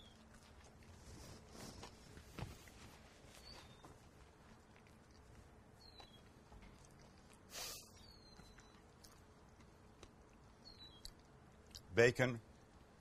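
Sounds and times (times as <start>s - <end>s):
soft chewing clicks: 0.0s - 13.0s
faint high chirps: 5.8s - 6.4s, 7.5s - 9.2s, 10.5s - 11.3s.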